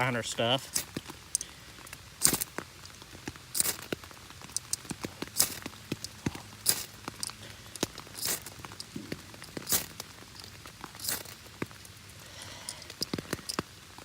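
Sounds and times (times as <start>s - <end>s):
raindrops on an umbrella: 0.0s - 14.0s
ferro rod scraping: 2.2s - 2.6s, 3.6s - 11.8s.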